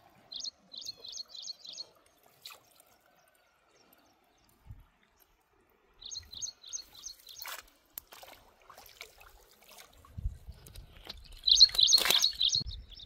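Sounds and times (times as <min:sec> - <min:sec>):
bird chirping: 0:00.3 - 0:02.0, 0:06.0 - 0:07.5, 0:11.3 - 0:13.0.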